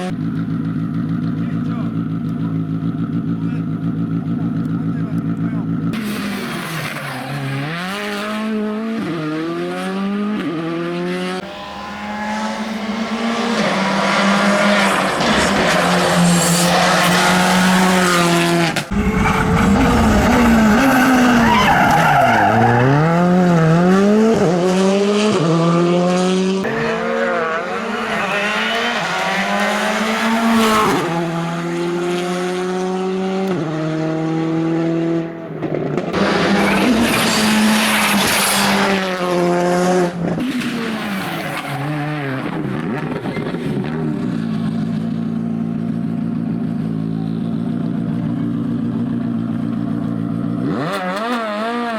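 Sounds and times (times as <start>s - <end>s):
rally car engine revving: 0.0s - 51.9s
tyres squealing and skidding: 6.0s - 8.1s, 11.4s - 24.5s, 26.6s - 31.9s, 36.1s - 39.1s, 40.4s - 43.7s.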